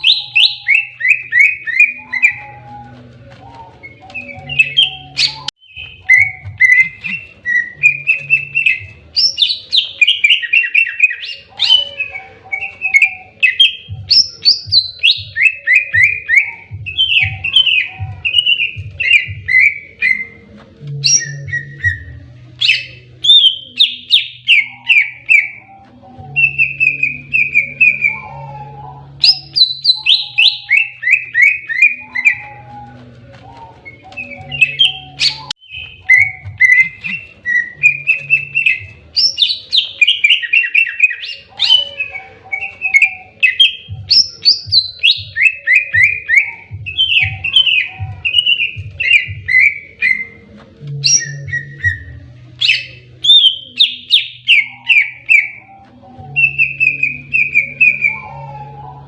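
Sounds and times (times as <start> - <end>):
bird singing fast chirps: 0.0 - 2.9, 3.6 - 28.6, 29.2 - 32.9.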